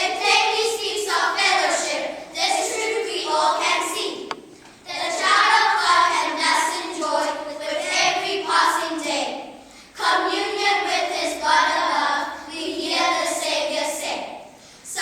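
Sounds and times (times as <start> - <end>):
children singing together: 0.0 - 15.0.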